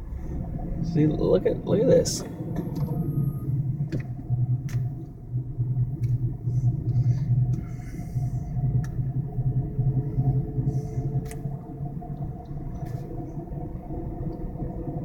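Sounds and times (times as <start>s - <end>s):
engine and road rumble: 0.0s - 15.0s
faint steady hum: 0.0s - 15.0s
light ticks: 8.8s - 9.0s.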